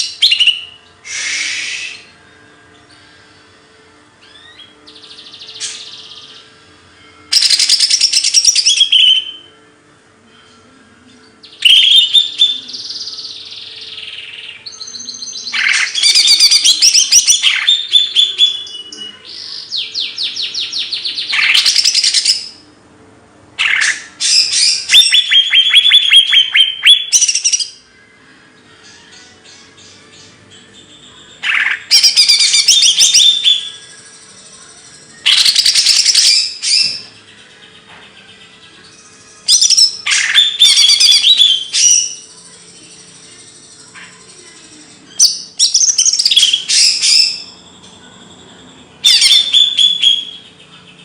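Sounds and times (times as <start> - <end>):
songbird singing: 0.0 - 9.6, 10.6 - 22.8, 23.6 - 51.0.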